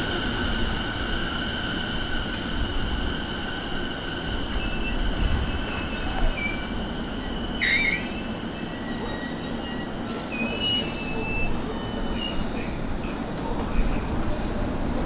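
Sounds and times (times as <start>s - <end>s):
electric train rumbling to a stop: 0.0s - 15.0s
high brake squeals: 4.4s - 12.5s.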